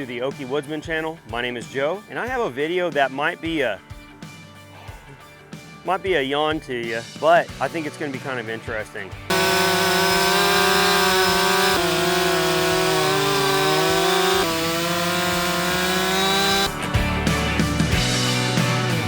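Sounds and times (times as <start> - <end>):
music: 0.0 - 9.3, 13.0 - 19.0
chainsaw running: 9.3 - 16.8.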